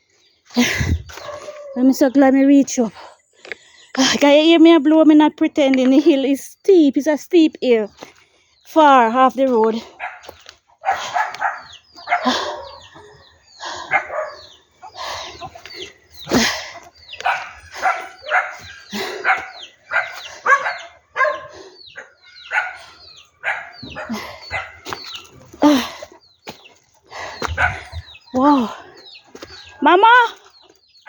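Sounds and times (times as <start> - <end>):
dog barking: 10.0 - 13.0, 13.8 - 14.6, 17.2 - 25.1, 27.6 - 28.0.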